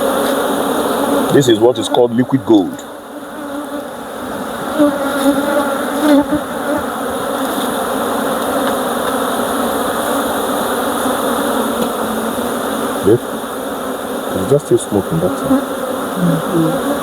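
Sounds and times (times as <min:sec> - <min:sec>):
honeybees buzzing: 0:00.0 - 0:17.0
hive frames knocking: 0:15.0 - 0:15.7.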